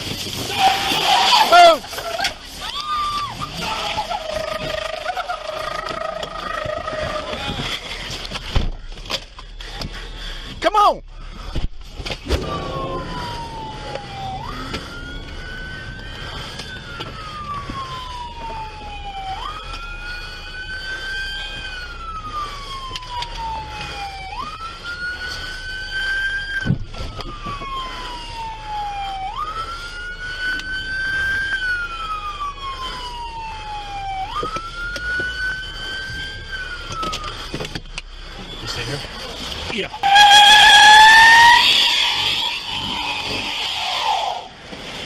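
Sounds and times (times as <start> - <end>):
police siren wailing: 0.0 - 9.8, 12.2 - 45.0
vehicle rumble: 0.0 - 45.0.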